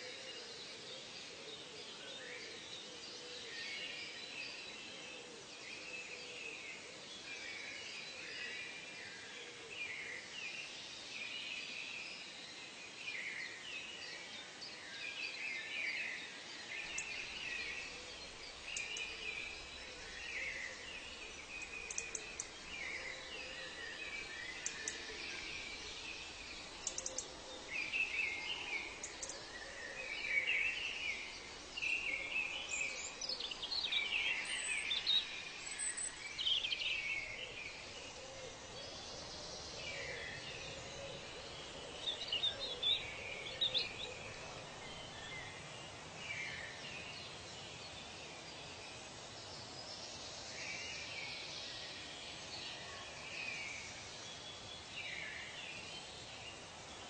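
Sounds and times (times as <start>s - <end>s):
steady background hiss: 0.0s - 57.0s
birds chirping and calling: 16.9s - 45.7s.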